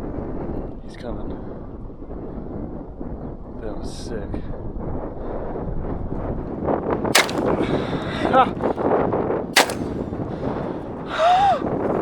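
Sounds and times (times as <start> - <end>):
shotgun shots: 7.2 - 8.1, 9.6 - 10.2.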